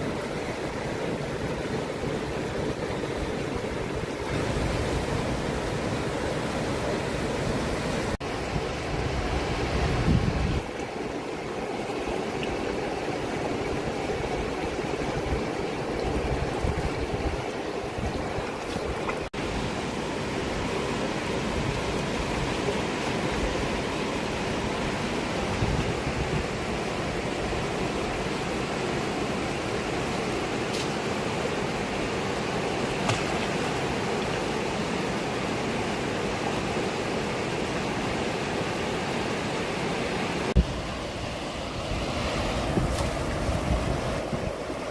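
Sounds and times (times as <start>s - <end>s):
river rushing: 0.0s - 44.9s
wind buffeting microphone: 7.5s - 10.7s, 13.6s - 19.3s, 25.4s - 27.7s, 40.6s - 44.9s.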